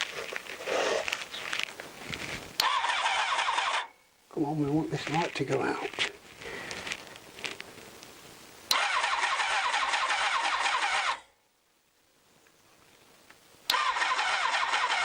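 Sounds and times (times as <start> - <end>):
motorcycle engine cranking on starter: 2.6 - 3.9, 8.7 - 11.2, 13.7 - 15.0.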